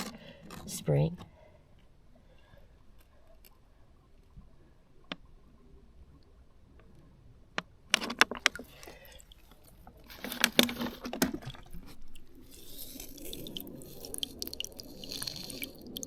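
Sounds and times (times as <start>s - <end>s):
sharp clicks and crunching: 0.0s - 0.8s, 7.6s - 16.0s
spring water trickling: 8.4s - 16.0s.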